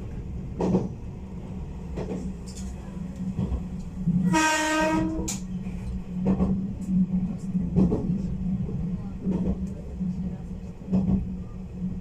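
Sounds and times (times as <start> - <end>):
train running hum: 0.0 - 12.0
rail-joint clack: 0.6 - 1.0, 1.9 - 9.9
train horn blast: 4.2 - 5.4.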